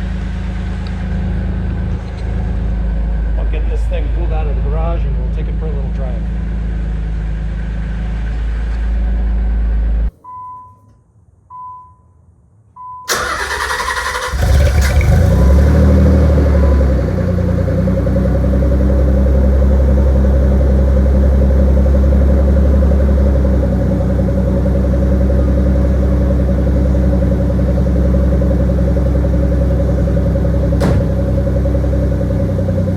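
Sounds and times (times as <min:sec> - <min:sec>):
car engine running: 0:00.0 - 0:10.1, 0:13.1 - 0:32.9
starter cranking: 0:13.1 - 0:15.4.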